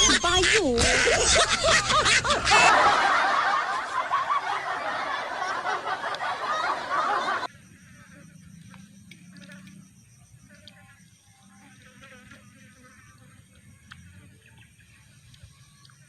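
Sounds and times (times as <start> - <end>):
loud laughter: 0.0 - 7.5.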